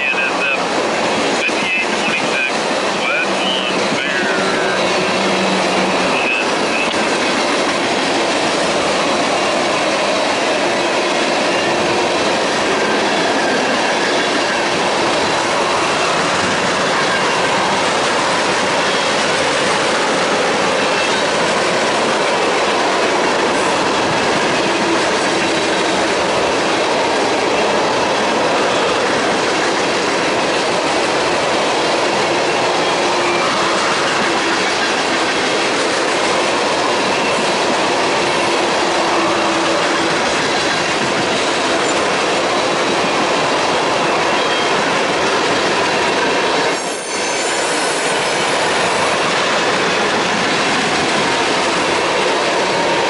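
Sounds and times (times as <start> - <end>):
train wheels rumbling and rattling: 0.0 - 53.0
faint high wheel squeals: 46.8 - 48.2.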